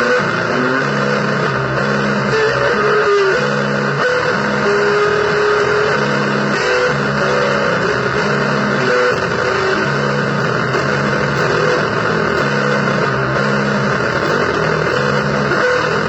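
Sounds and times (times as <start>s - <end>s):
distorted noise wall: 0.0s - 16.0s
low droning pitched tones: 5.7s - 16.0s.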